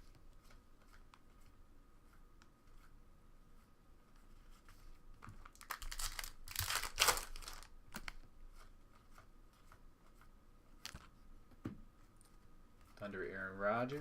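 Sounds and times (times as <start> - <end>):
wrapper crinkling and tearing: 5.4 - 8.2.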